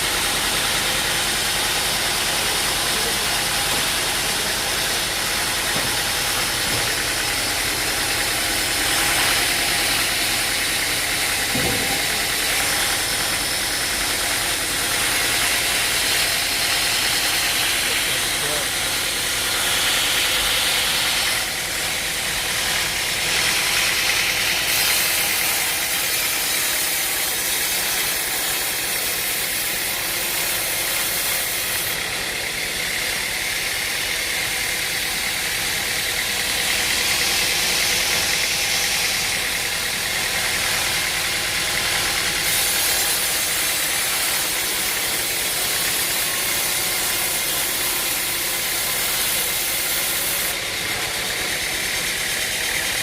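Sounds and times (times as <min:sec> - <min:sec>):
machine engine running: 0:00.0 - 0:53.0.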